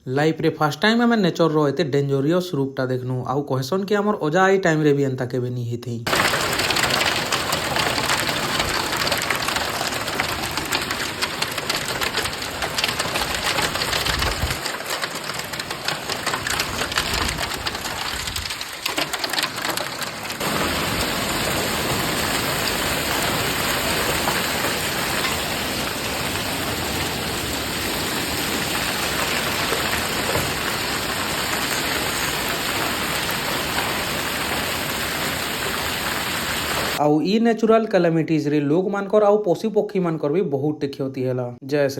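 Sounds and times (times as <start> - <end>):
heavy rain: 6.1 - 37.0.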